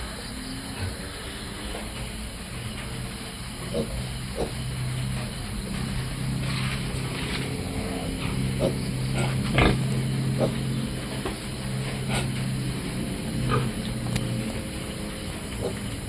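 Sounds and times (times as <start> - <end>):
steady low hum: 0.0 - 16.0
piglets grunting and squealing: 3.7 - 4.6, 7.0 - 11.1, 11.7 - 12.5.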